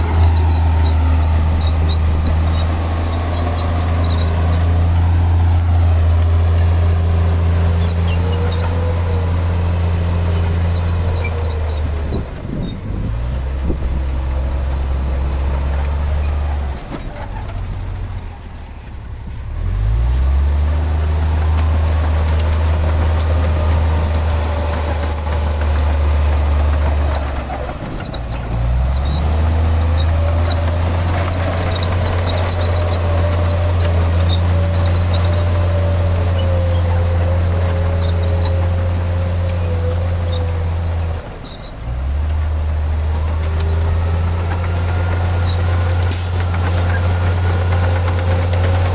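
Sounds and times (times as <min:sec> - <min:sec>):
heavy diesel engine under load: 0:00.0 - 0:48.9.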